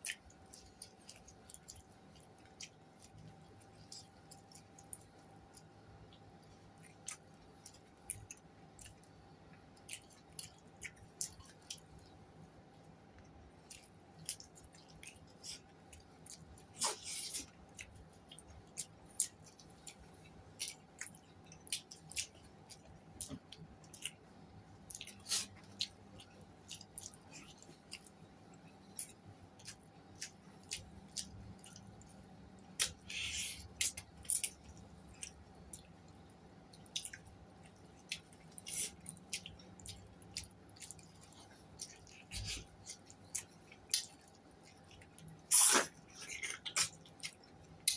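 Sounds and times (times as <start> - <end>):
wet chewing and lip-smacking: 0.0 - 47.9
hissy mouth sounds: 45.5 - 46.0.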